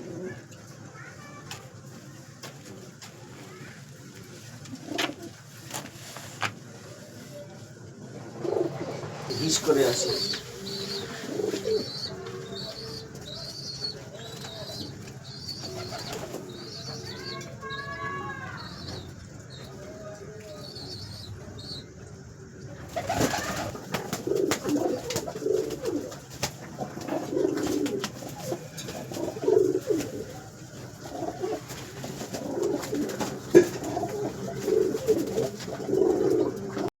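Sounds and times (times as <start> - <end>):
pigeons cooing: 0.0 - 0.6, 7.9 - 19.6, 22.9 - 36.9.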